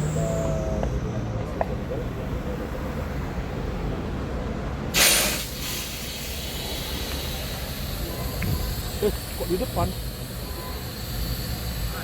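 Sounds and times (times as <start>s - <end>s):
diesel truck engine running: 0.0s - 12.0s
air brake hiss: 4.9s - 12.0s.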